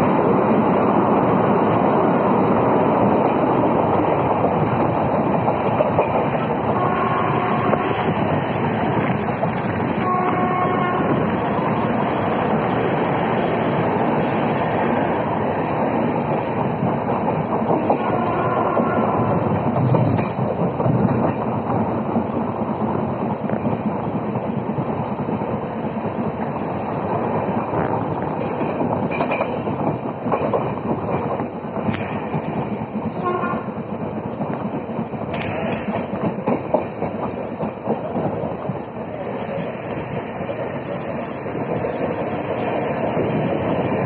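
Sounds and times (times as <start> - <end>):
train wheels rolling on track: 0.0 - 44.0
wheels clattering over rail joints: 3.0 - 10.6, 15.9 - 22.0, 28.2 - 44.0.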